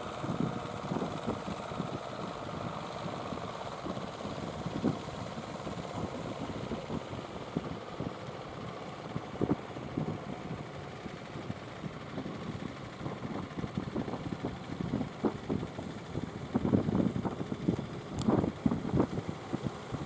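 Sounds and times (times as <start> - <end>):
boat engines running: 14.0 - 20.0
wind buffeting microphone: 14.8 - 20.0.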